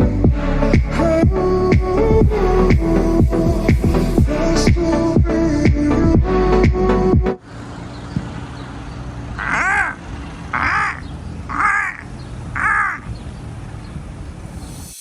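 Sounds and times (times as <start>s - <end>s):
low background rumble: 0.0s - 7.4s
crow cawing: 9.4s - 13.1s.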